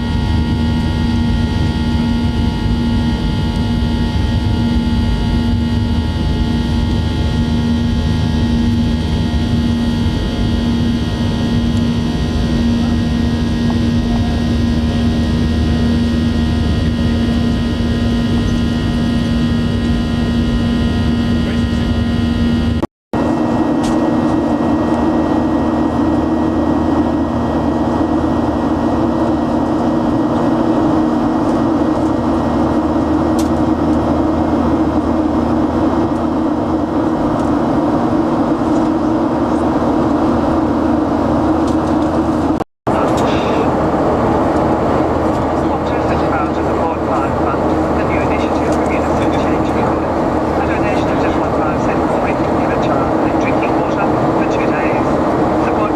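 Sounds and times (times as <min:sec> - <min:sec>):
jet airliner cabin drone: 0:00.0 - 0:55.9.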